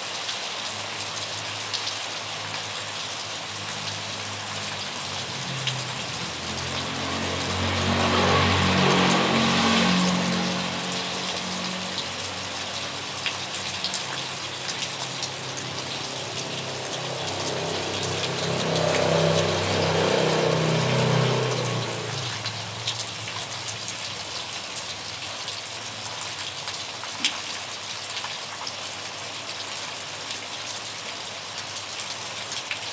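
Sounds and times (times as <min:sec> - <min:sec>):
steady rain falling: 0:00.0 - 0:32.9
water drips ticking: 0:00.0 - 0:32.9
passing vehicle engine hum: 0:03.4 - 0:25.0.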